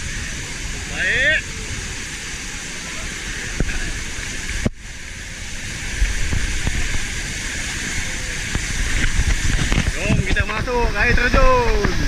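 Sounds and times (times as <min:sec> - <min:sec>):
waterfall rushing: 0:00.0 - 0:12.0
wind buffeting microphone: 0:00.0 - 0:12.0.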